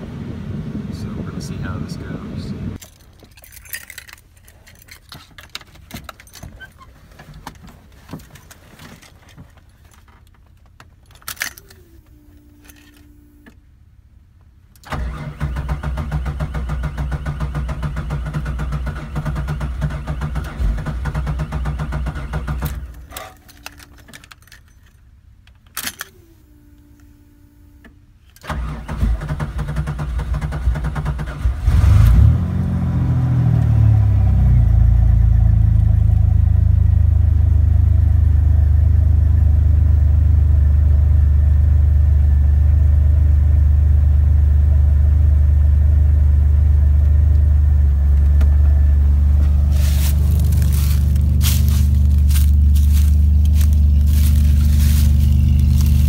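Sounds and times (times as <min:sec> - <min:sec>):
car engine idling: 0:34.8 - 0:56.0.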